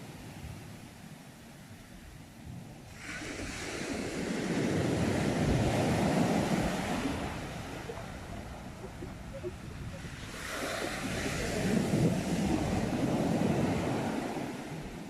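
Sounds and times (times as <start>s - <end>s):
sea waves breaking on shore: 0.0s - 15.0s.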